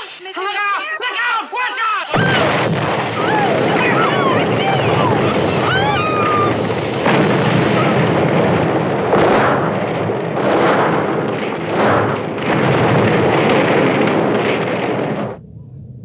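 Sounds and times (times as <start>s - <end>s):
fire rumbling: 2.1s - 16.0s
explosion blasts: 2.2s - 16.0s.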